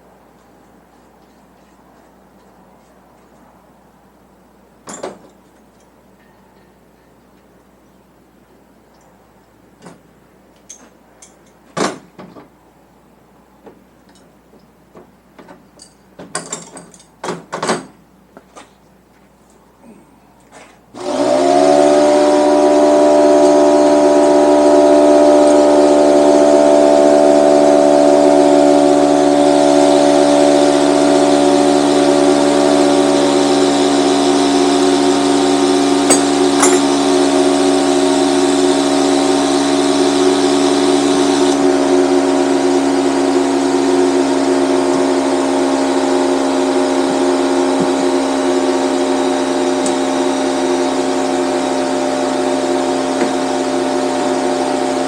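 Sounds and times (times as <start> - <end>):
air compressor running: 20.9 - 55.0.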